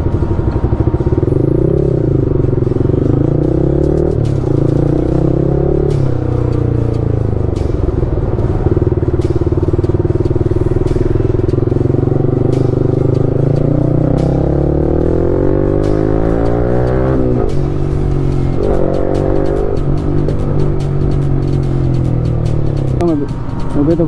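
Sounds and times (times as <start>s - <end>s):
background music: 0.0s - 24.0s
motorcycle engine revving: 0.0s - 24.0s.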